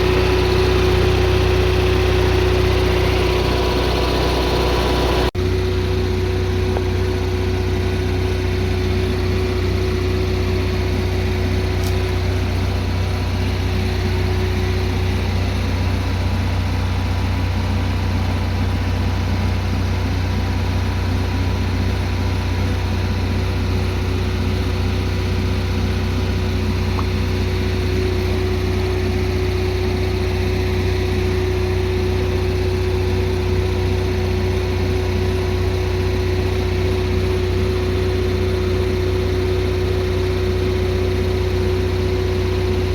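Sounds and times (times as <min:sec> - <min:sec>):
generator engine hum: 0:00.0 - 0:42.9.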